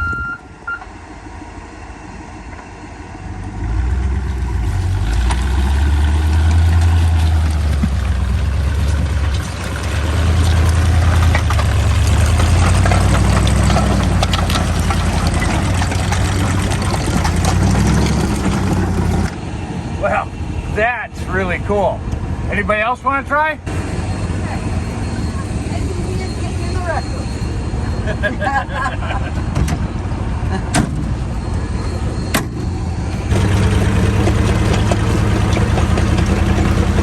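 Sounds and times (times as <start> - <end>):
snow vehicle engine rumbling: 0.0 - 37.0
machine rattling clatter: 33.3 - 37.0.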